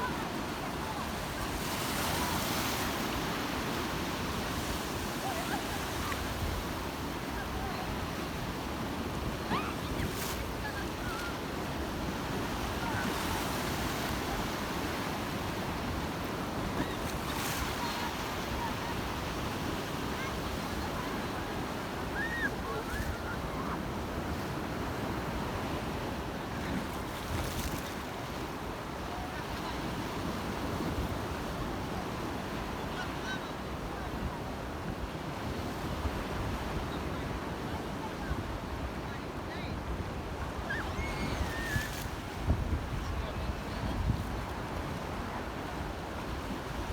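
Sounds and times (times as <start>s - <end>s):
waves washing onto shore: 0.0s - 46.9s.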